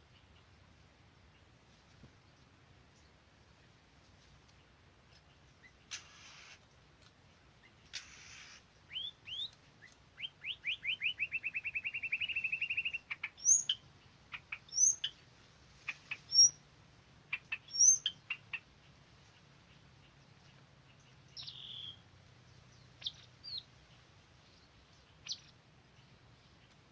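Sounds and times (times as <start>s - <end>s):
hissing rustles: 5.9s - 6.8s, 7.9s - 8.7s
bird singing: 7.6s - 15.2s, 15.8s - 26.9s.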